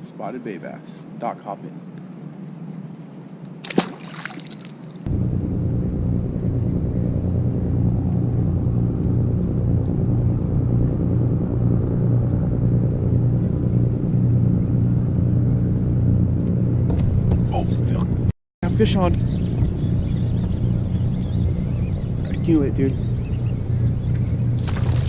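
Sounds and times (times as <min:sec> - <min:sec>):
low engine rumble: 0:05.1 - 0:25.0.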